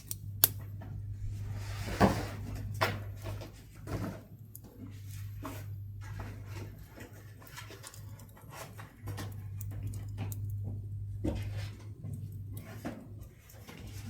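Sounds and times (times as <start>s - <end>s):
wood fire crackling and popping: 0.0s - 1.0s, 6.7s - 14.0s
steady low hum: 0.0s - 14.0s.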